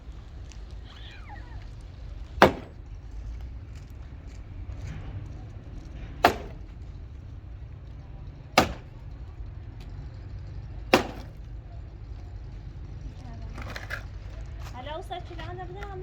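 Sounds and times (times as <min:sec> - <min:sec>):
sharp blows: 0:02.4 - 0:02.9, 0:06.2 - 0:06.8, 0:08.6 - 0:09.1, 0:10.9 - 0:11.5.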